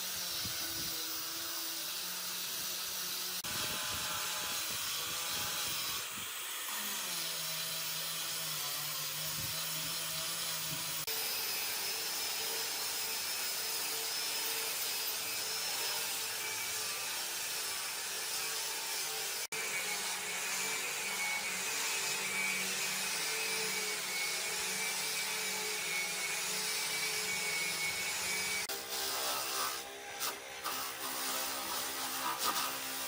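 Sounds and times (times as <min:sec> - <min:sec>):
power tool motor whine: 0:00.0 - 0:33.0
hiss: 0:28.9 - 0:33.0.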